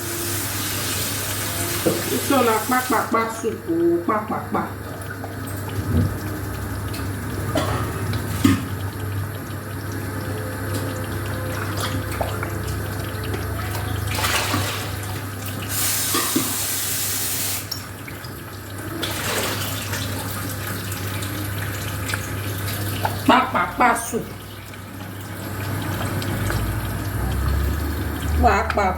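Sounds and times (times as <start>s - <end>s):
tap water running and splashing: 0.0s - 28.9s
steady low hum: 3.1s - 14.1s.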